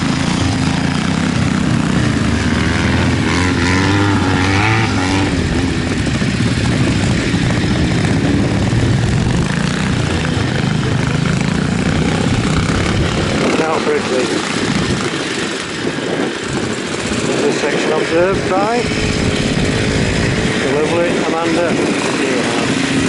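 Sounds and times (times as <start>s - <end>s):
motorcycle engine at low revs: 0.0s - 23.0s.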